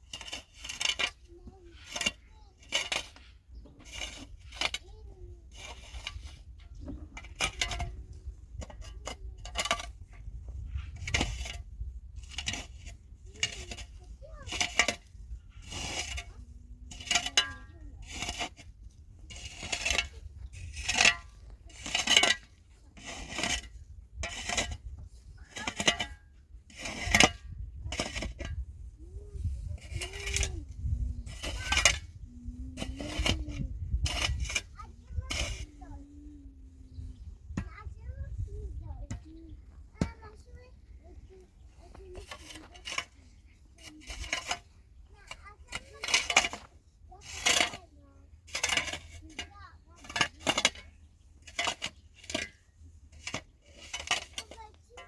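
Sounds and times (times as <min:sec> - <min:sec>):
metal tool striking rock: 0:17.0 - 0:18.5, 0:25.5 - 0:28.6.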